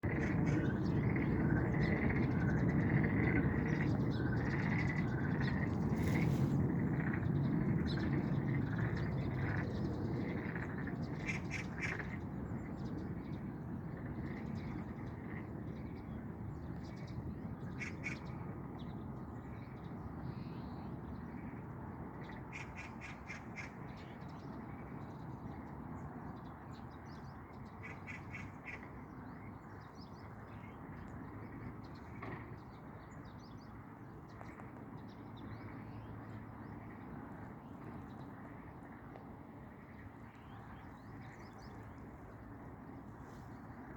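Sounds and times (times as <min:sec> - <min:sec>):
frogs calling in a chorus: 0:00.1 - 0:12.2, 0:17.7 - 0:18.2, 0:22.3 - 0:23.8, 0:27.8 - 0:29.3.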